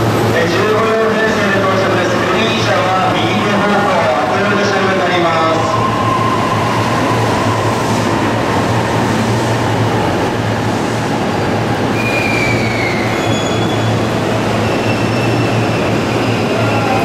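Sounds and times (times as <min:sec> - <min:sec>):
train wheels rumbling: 0:00.0 - 0:17.0
high brake squeal: 0:11.9 - 0:17.0.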